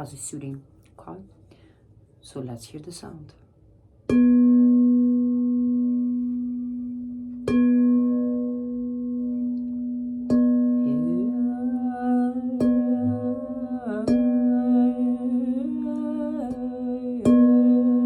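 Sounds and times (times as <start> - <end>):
singing bowl ringing: 4.1 - 18.0
person humming: 10.8 - 18.0.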